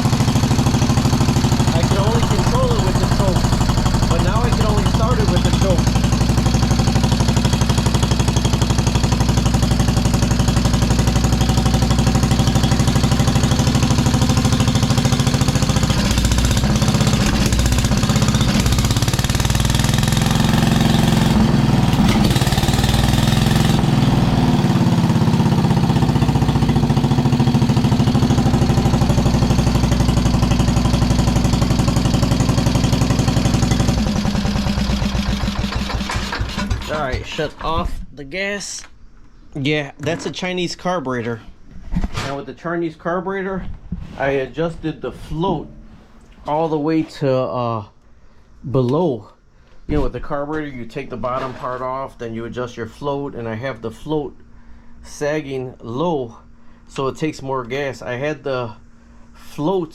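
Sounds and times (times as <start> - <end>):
lawn tractor engine running: 0.0 - 37.7.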